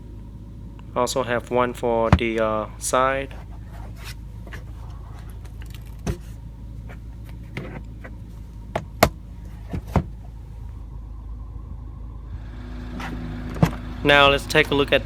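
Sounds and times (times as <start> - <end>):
steady low hum: 0.0 - 15.0
sun visor clicks and knocks: 3.4 - 10.4.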